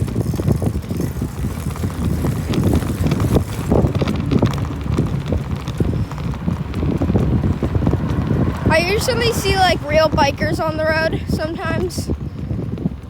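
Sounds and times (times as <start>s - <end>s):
small knocks and rattles: 0.0s - 8.6s
wind and road rumble: 0.0s - 13.0s.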